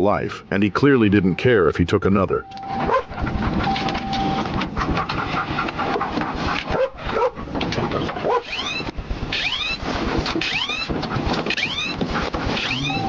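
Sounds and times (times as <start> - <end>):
siren yelps: 2.4 - 4.6, 8.4 - 9.8, 10.4 - 10.9, 11.5 - 12.0, 12.6 - 13.0.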